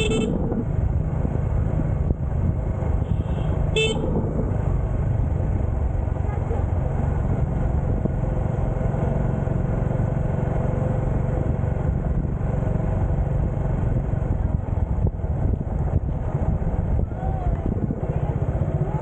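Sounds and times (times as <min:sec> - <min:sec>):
motorcycle engine running: 0:00.0 - 0:19.0
road noise: 0:00.0 - 0:19.0.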